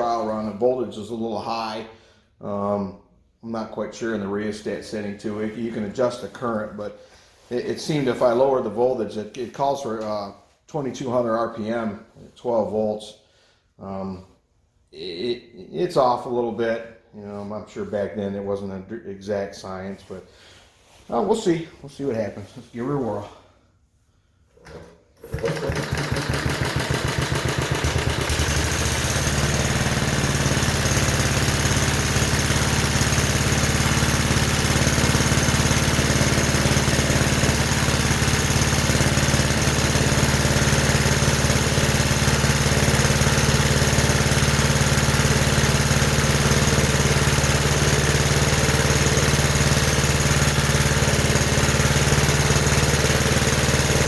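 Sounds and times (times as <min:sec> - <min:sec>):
small gasoline engine running: 0:25.2 - 0:54.0.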